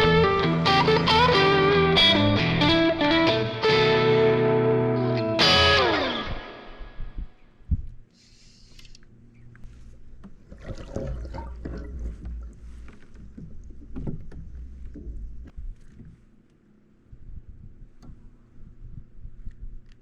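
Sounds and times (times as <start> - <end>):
low rumble: 17.1 - 20.0.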